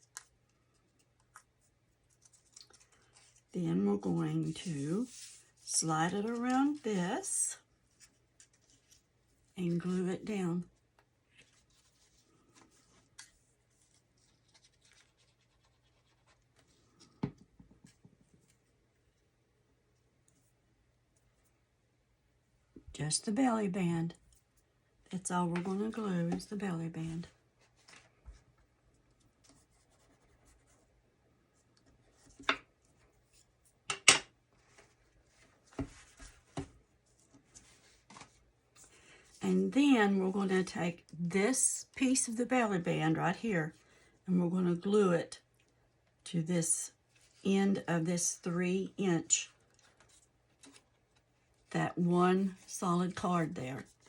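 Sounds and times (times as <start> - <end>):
paper card rustling and scraping: 0.1 - 3.5, 4.3 - 6.8, 7.8 - 9.1, 11.3 - 18.7, 25.6 - 28.5, 34.5 - 39.4, 49.5 - 51.7.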